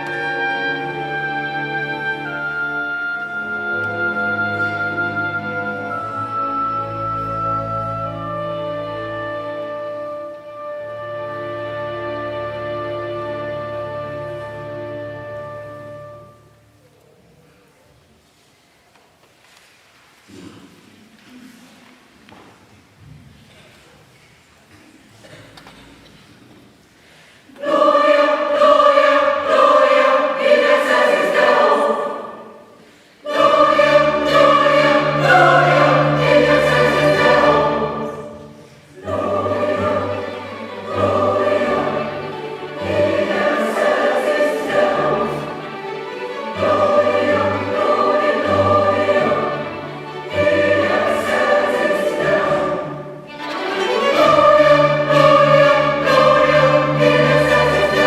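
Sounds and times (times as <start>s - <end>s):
choir singing with orchestra: 0.0s - 16.8s, 27.1s - 58.0s.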